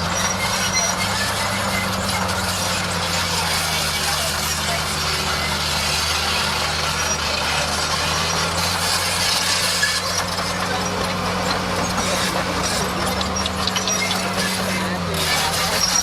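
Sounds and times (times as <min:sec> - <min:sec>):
bulldozer diesel engine running: 0:00.0 - 0:16.0.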